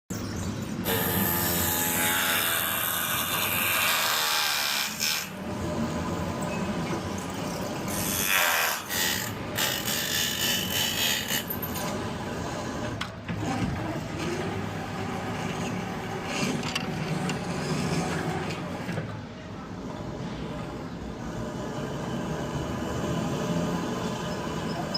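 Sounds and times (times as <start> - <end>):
power tool running under load: 0.8 - 5.6.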